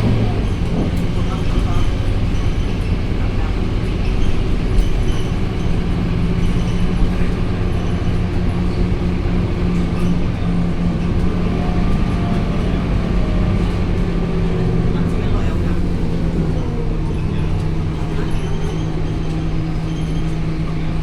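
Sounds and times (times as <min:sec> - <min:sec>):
bus diesel engine drone: 0:00.0 - 0:21.0.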